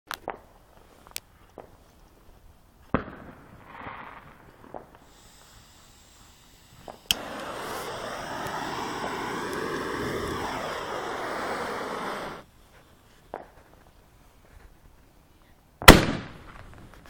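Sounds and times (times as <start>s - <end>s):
firework bangs and pops: 2.8s - 5.3s, 6.8s - 12.5s, 15.8s - 17.0s
firework rushing hiss: 4.8s - 12.9s.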